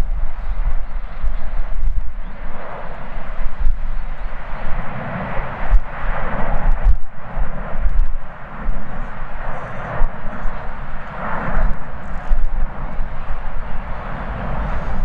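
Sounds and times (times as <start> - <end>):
jet engines roaring: 0.0 - 15.0
wind buffeting microphone: 0.0 - 15.0.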